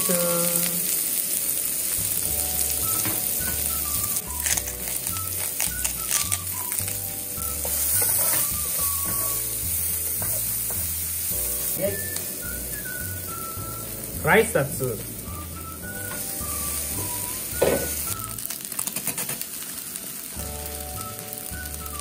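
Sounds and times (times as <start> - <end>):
sausage and onion sizzling in a pan: 0.0 - 22.0
wooden spatula scraping a pan: 7.4 - 11.9.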